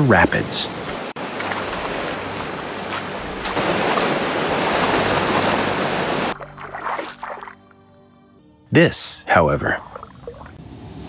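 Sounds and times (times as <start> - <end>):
water rushing over rocks: 0.0 - 7.4.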